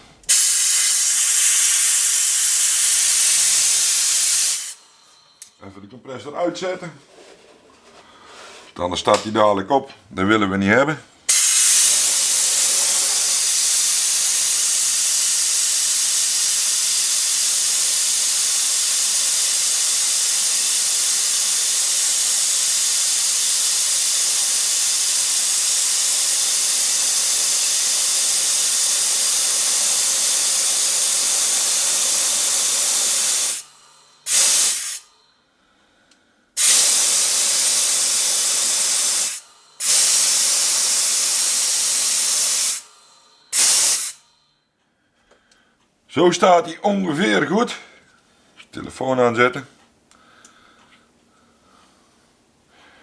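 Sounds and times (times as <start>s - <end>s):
compressed air hissing: 0.0s - 5.6s, 11.3s - 35.2s, 36.5s - 44.4s.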